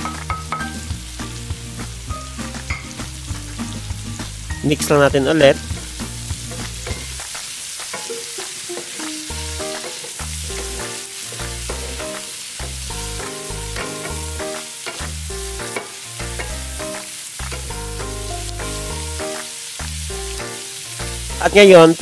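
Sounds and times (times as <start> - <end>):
background music with bass: 0.0 - 7.2, 9.3 - 20.4
vegetables sizzling in oil: 0.0 - 22.0.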